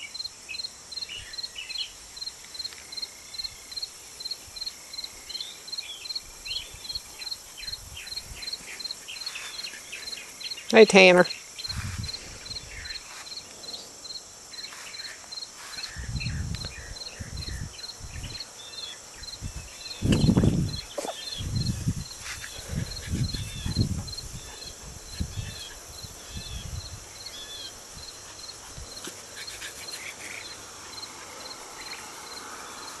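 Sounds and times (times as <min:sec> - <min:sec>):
high insect hiss: 0:00.0 - 0:33.0
insect chirping: 0:00.0 - 0:33.0.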